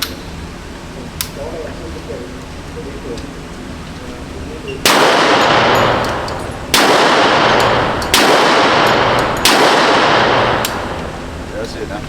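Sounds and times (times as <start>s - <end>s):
gunshots echoing indoors: 4.8s - 11.4s.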